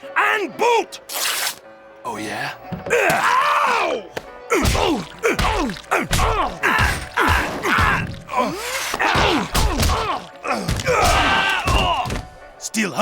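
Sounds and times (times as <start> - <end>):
pained cries: 2.8 - 12.3.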